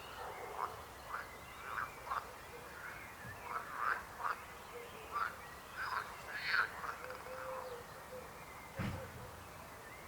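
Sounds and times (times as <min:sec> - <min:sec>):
frogs croaking: 0:00.0 - 0:07.8.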